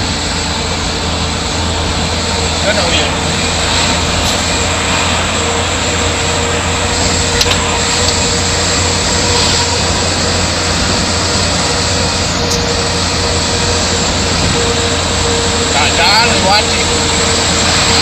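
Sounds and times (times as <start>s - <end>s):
faint steady whine: 0.0s - 18.0s
truck driving at high speed: 0.0s - 18.0s.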